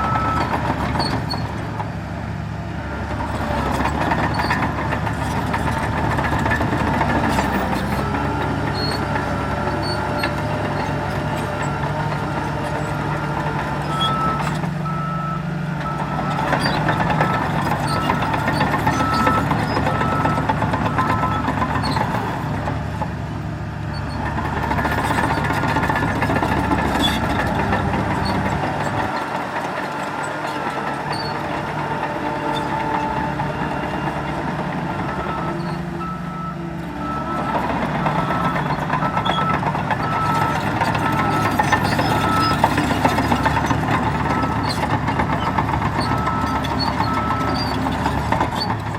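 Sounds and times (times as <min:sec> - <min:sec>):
diesel dump truck running: 0:00.0 - 0:48.9
heavy machinery droning: 0:02.4 - 0:23.1, 0:23.7 - 0:48.9
reversing alarm beeping: 0:32.6 - 0:43.6, 0:46.2 - 0:47.6.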